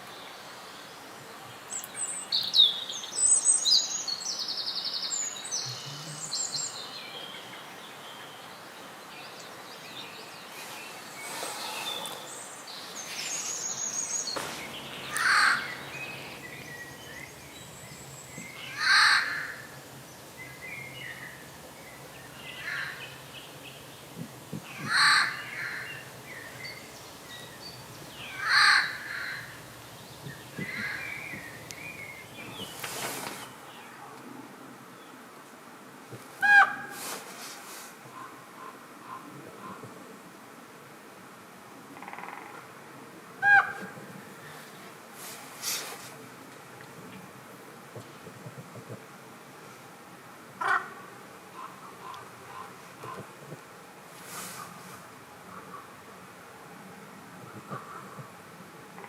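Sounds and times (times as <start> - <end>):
bird chirping trills: 1.8 - 24.1
loud harsh bird calls: 10.6 - 19.9, 22.4 - 23.4, 24.7 - 26.9, 27.8 - 29.8, 30.5 - 31.6.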